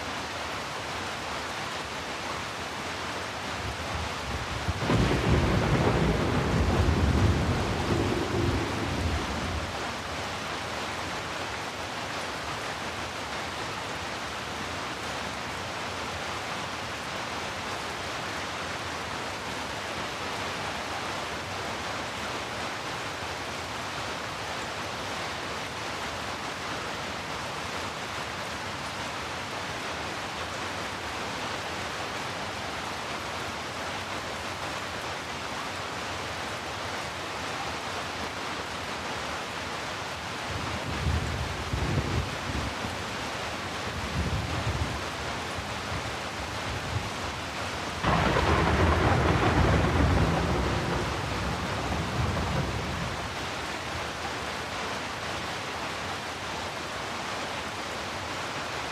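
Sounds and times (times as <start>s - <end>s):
steady rain hissing: 0.0s - 58.9s
low roll of thunder: 4.4s - 9.8s, 48.0s - 53.4s.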